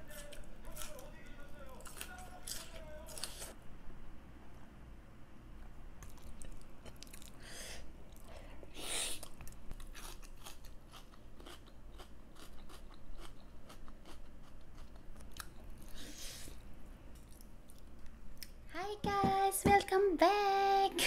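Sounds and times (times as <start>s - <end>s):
close-up chewing: 0.0s - 3.6s, 6.0s - 7.4s, 9.2s - 16.0s.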